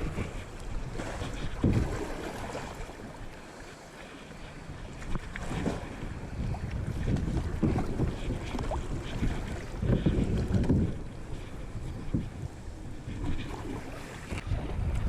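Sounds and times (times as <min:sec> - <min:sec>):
wind buffeting microphone: 0:00.0 - 0:03.6, 0:04.4 - 0:15.0
paddle splashing water: 0:00.0 - 0:15.0.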